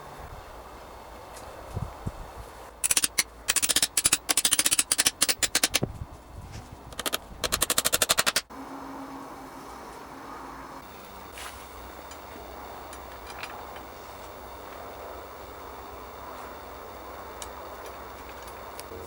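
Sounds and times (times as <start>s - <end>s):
rapid sharp taps: 6.9s - 8.5s.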